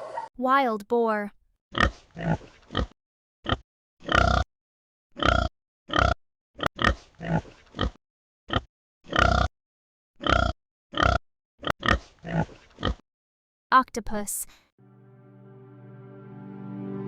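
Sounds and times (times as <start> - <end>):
wild boar grunting: 1.8 - 4.4, 5.2 - 9.5, 10.2 - 13.0.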